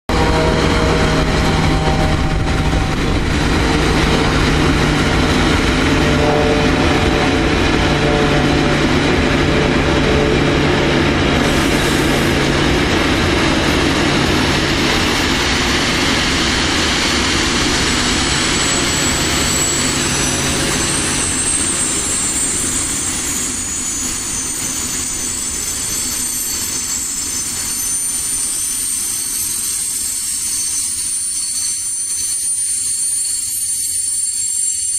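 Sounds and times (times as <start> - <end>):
locomotive electric hum: 0.1 - 32.8
wheels rumbling on rails: 0.1 - 34.9
high brake squealing: 11.2 - 34.9.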